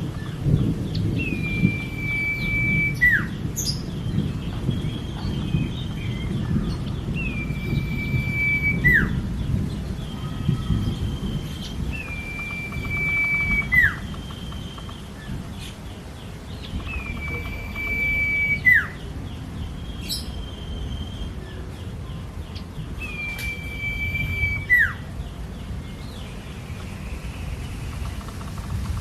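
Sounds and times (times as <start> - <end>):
bird chirps: 0.0 - 29.0
bird whistling: 1.2 - 3.8, 7.2 - 9.3, 10.1 - 15.0, 16.7 - 19.1, 23.0 - 25.0.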